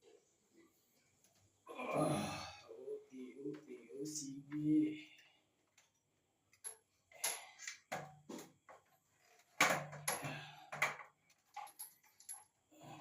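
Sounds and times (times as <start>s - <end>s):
knocks and clatters: 6.6s - 12.5s.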